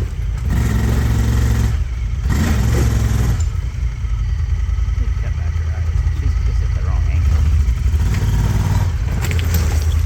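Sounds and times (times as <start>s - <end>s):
engine revving hard under load: 0.0s - 4.0s, 7.2s - 10.0s.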